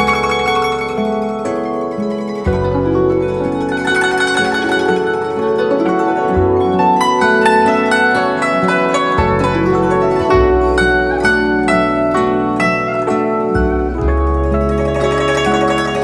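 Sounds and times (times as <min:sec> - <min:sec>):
low sustained bass line: 0:00.0 - 0:16.0
plucked zither notes: 0:00.0 - 0:16.0.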